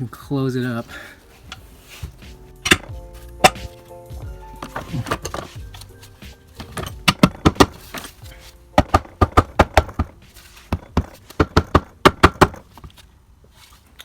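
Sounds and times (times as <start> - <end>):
sharp knocks on metal housing: 2.6 - 3.8, 6.6 - 8.1, 8.8 - 12.6.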